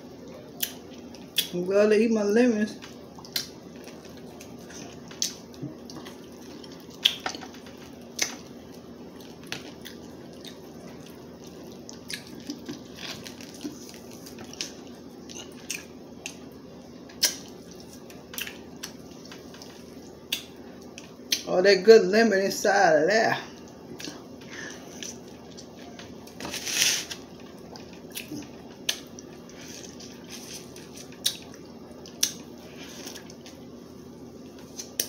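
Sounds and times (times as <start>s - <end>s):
faint steady hum: 0.0s - 35.0s
person chewing and sucking: 3.2s - 16.4s, 24.8s - 33.6s.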